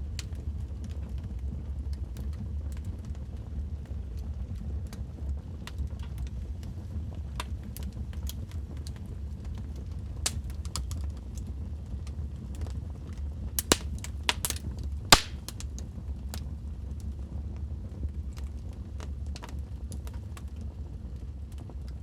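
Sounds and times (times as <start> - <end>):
low rumble of flames: 0.0 - 22.0
wood fire crackling and popping: 5.6 - 16.4, 18.4 - 22.0.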